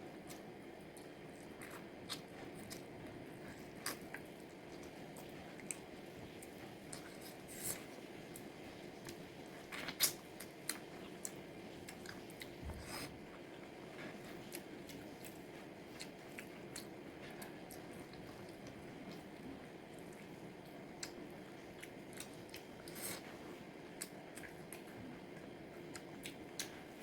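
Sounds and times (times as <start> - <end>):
chewing and biting food: 0.2 - 27.0.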